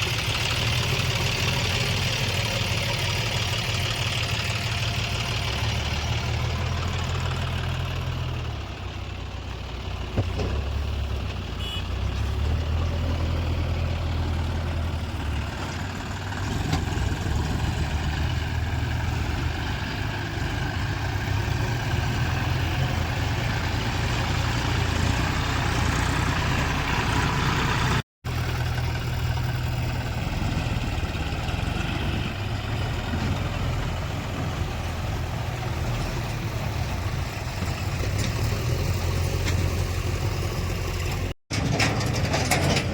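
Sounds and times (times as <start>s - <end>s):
heavy diesel machinery running: 0.0s - 42.9s.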